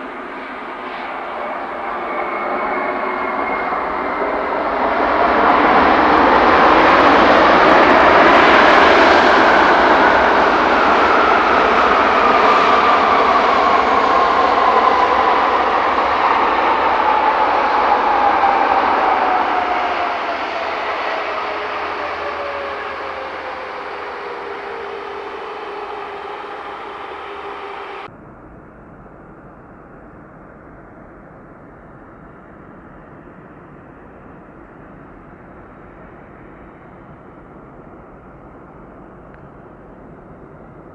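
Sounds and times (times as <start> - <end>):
jet engines rushing past: 0.0 - 28.1
jet engine whine falling in pitch: 0.0 - 40.9.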